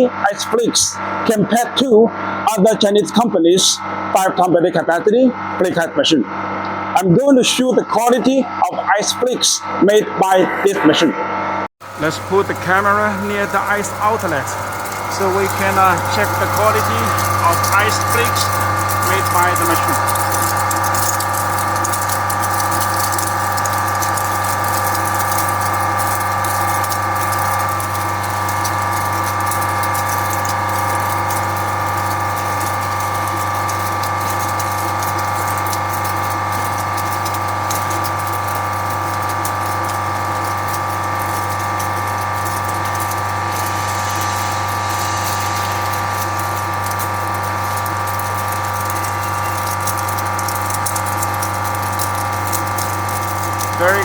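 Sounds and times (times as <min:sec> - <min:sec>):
ice machine compressor hum: 0:00.0 - 0:54.0
ice flakes crackling: 0:11.8 - 0:54.0.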